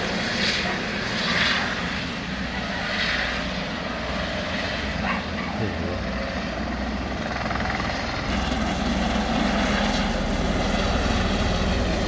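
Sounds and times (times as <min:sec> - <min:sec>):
helicopter rotor and engine: 0:00.0 - 0:12.0.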